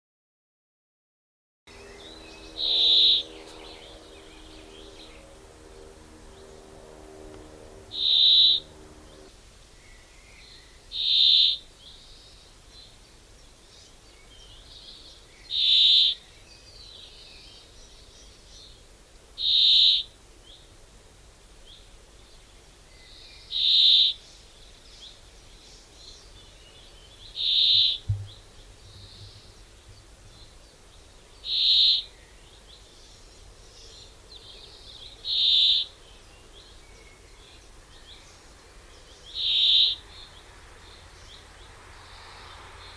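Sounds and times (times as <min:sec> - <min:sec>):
bird calling: 0:01.8 - 0:05.4, 0:06.3 - 0:09.3, 0:10.9 - 0:11.6, 0:15.5 - 0:16.2, 0:19.4 - 0:20.1, 0:27.3 - 0:30.0, 0:31.4 - 0:32.2, 0:35.2 - 0:36.0, 0:39.3 - 0:40.4.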